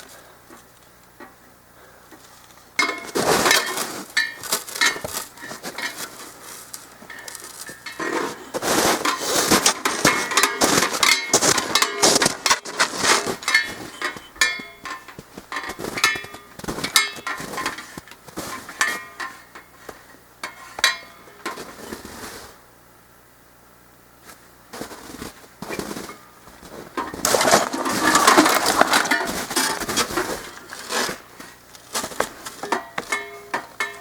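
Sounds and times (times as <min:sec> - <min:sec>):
metallic knocks and clinks: 0:13.4 - 0:17.7, 0:32.6 - 0:34.0.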